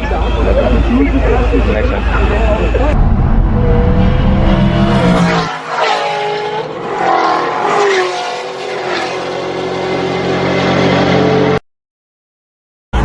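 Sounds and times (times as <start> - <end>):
heavy engine rumble: 0.0 - 5.5
cars accelerating hard: 0.5 - 11.6.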